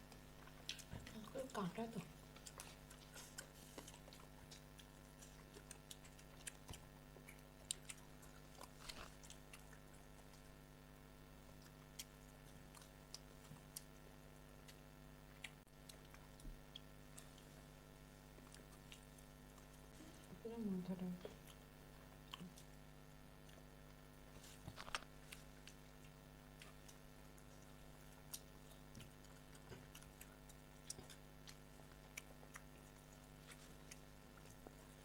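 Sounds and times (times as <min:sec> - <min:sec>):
people chewing: 0:00.0 - 0:35.0
steady low hum: 0:00.0 - 0:35.0.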